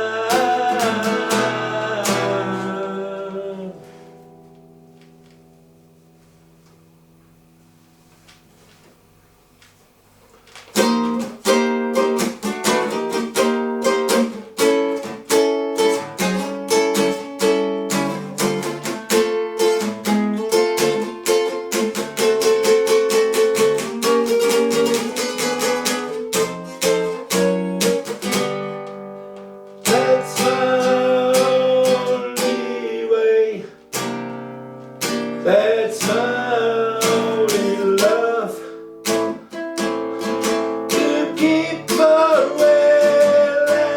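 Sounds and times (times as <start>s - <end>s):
acoustic guitar picking: 0.0s - 43.9s.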